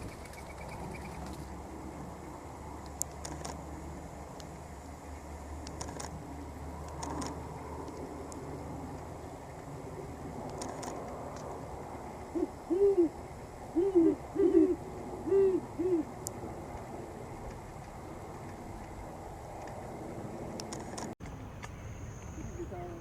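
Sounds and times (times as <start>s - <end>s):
owl hooting: 12.3s - 13.2s, 13.8s - 16.2s.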